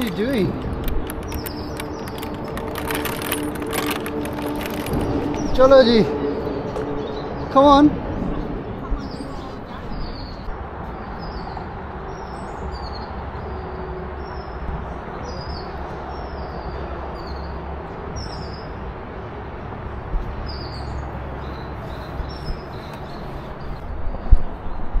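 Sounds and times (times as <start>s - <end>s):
small birds chirping: 0.0s - 7.6s, 20.4s - 23.8s.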